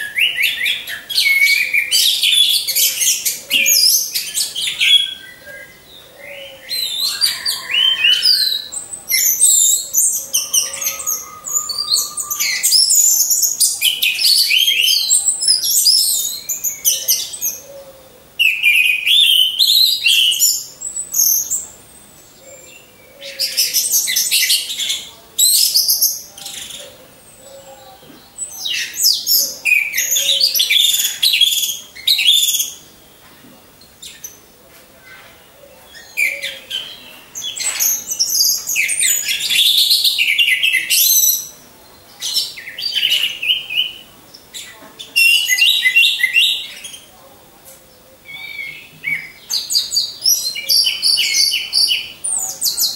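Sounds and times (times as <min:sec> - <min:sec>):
thrush singing: 0:06.5 - 0:13.9.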